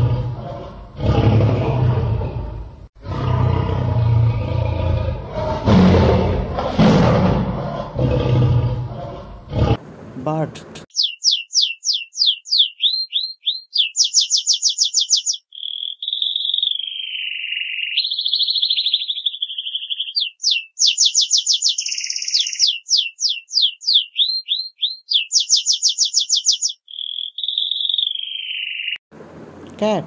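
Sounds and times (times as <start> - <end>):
songbird singing whistles and trills: 10.9 - 29.0.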